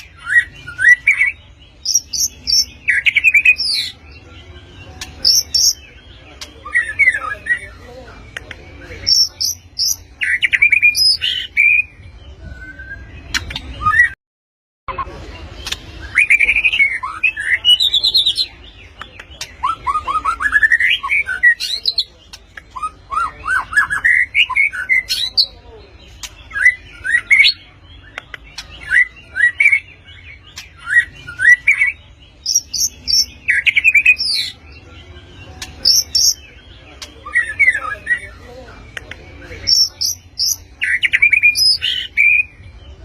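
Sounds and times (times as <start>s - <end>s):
bird singing whistled phrases: 10.2s - 14.2s.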